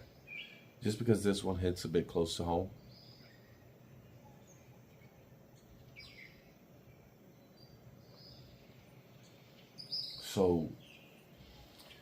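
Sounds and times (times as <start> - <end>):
faint bird chirps: 0.0 - 1.0, 2.6 - 12.0.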